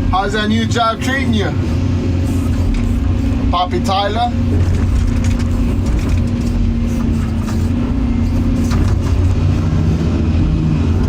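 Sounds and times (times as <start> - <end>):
heavy machine engine drone: 0.0 - 11.0.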